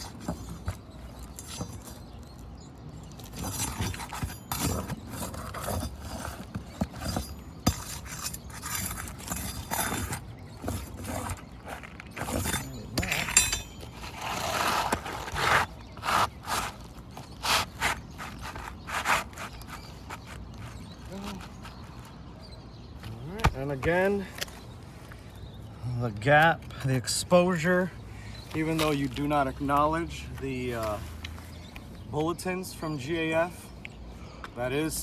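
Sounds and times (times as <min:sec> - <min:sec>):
tools scraping roof shingles: 0:00.0 - 0:22.1.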